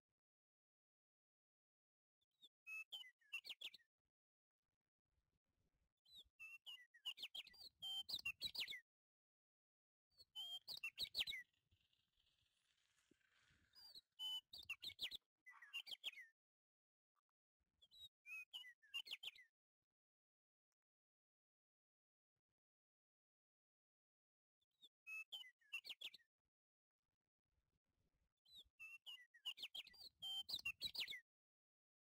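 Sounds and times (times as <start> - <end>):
small bird chirping: 10.2 - 16.4.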